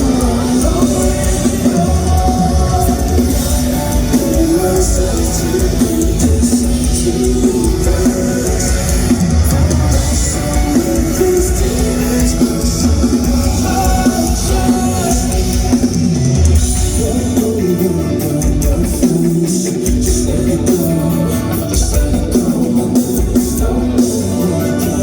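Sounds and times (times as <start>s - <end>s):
rock band playing live: 0.0s - 25.0s.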